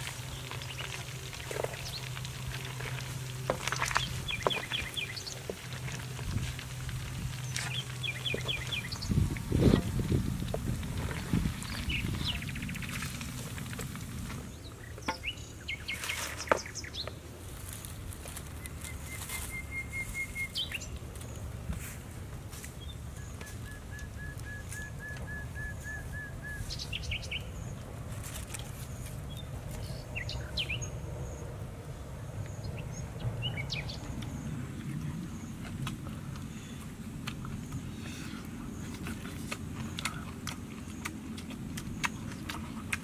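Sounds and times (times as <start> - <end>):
small birds calling: 0.0 - 13.5, 14.2 - 17.3, 18.3 - 21.5, 22.7 - 27.9, 28.6 - 43.0
steady low outdoor background: 0.0 - 43.0.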